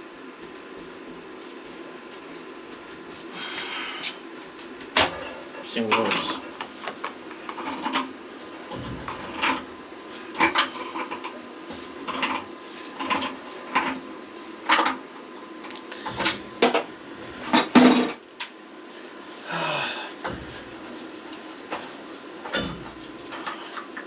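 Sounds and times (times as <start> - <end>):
tools clanking on plumbing: 16.0 - 16.9, 20.2 - 20.8, 21.7 - 24.0.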